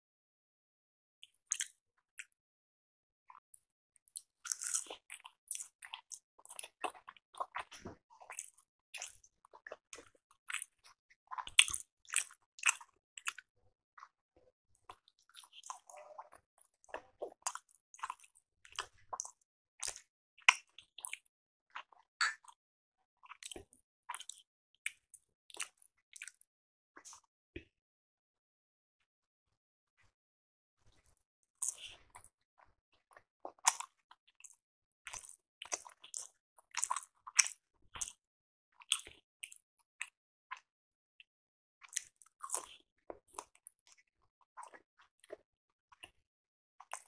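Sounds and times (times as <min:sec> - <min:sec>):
person chewing: 0:01.5 - 0:01.7, 0:04.2 - 0:14.1, 0:14.9 - 0:22.6, 0:23.2 - 0:26.4, 0:33.0 - 0:38.2, 0:41.9 - 0:43.7.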